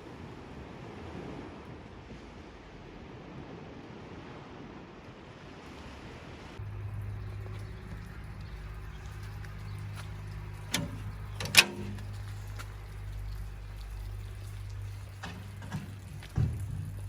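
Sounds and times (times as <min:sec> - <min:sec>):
rumble of water and wind: 0:00.0 - 0:17.0
sharp knocks or splashes: 0:14.6 - 0:17.0.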